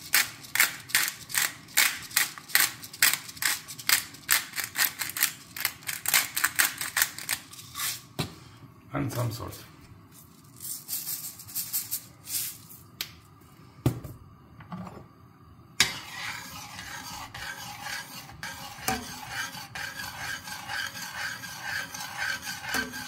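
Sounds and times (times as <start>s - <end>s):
utensil scraping in pot: 0.0s - 6.2s, 15.8s - 23.0s.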